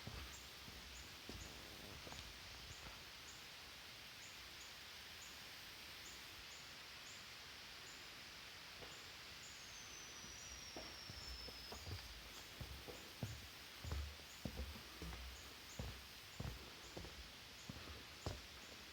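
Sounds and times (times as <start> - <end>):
steady high hiss: 0.0 - 18.9
soft high chirp: 9.5 - 12.4.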